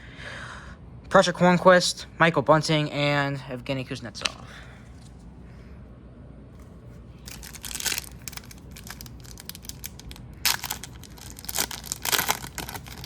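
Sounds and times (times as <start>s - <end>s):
card pack wrapper tearing and crinkling: 7.2s - 13.0s.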